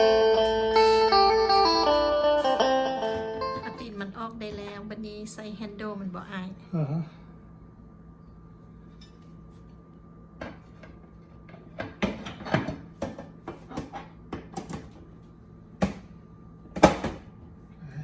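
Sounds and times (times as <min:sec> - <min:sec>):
faint steady hum: 0:00.0 - 0:18.0
clicks and knocks on refrigerator: 0:15.8 - 0:16.1, 0:16.7 - 0:17.3.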